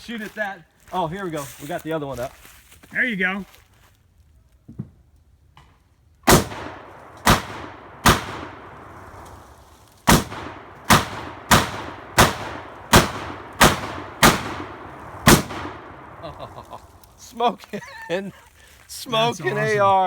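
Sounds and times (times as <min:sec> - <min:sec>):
rifle shots echoing: 0:06.3 - 0:16.6.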